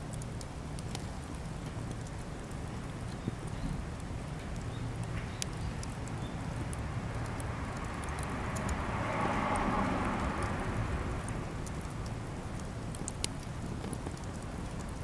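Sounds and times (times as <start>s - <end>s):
campfire crackling and popping: 0.0s - 15.0s
low steady fire rumble: 0.0s - 15.0s.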